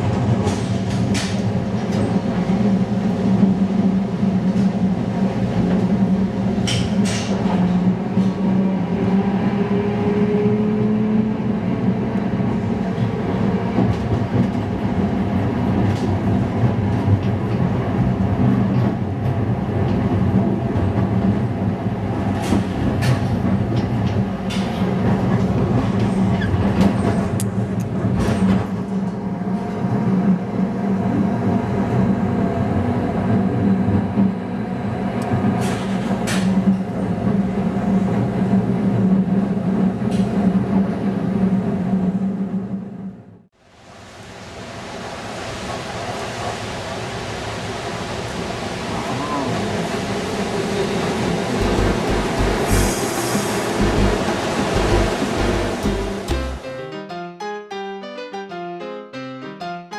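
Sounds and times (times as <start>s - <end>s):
streetcar motor hum and whine: 0.0s - 43.4s, 44.3s - 56.6s
sharp clicks and knocks: 51.6s - 53.0s.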